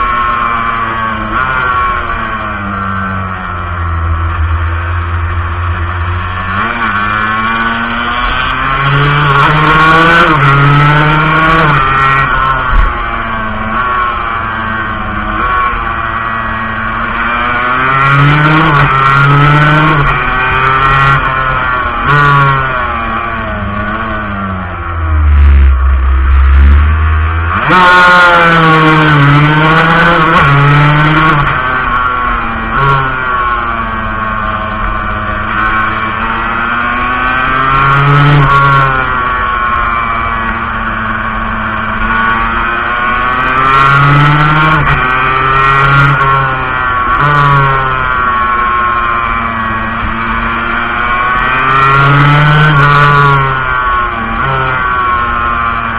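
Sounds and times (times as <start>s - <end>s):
two-stroke motorcycle engine: 0.0s - 55.9s
deep rumble: 22.6s - 29.8s.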